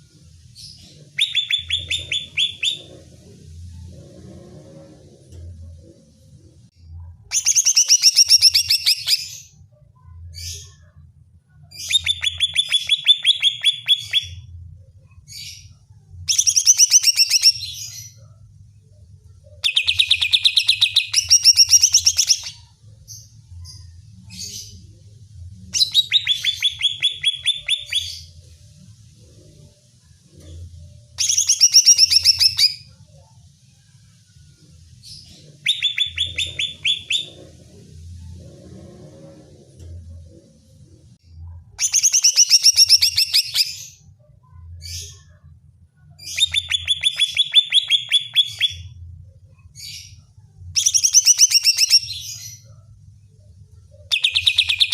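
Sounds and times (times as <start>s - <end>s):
bird singing fast trills: 1.2s - 2.9s, 35.7s - 37.4s, 50.8s - 52.4s.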